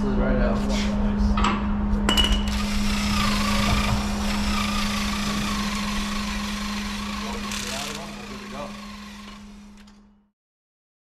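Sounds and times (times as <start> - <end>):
constant low hum: 0.0 - 10.3.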